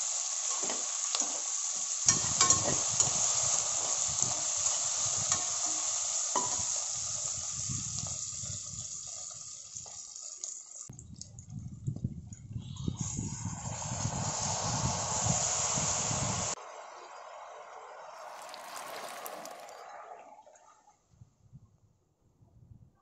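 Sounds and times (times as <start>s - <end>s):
vegetables sizzling in oil: 0.0s - 10.9s, 13.0s - 16.6s, 18.0s - 19.8s.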